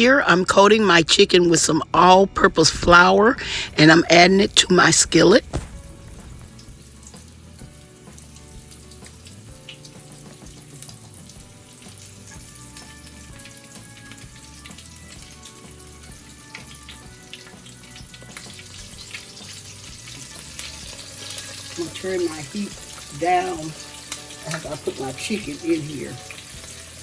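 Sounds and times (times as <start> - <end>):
chicken frying in oil: 5.1 - 27.0.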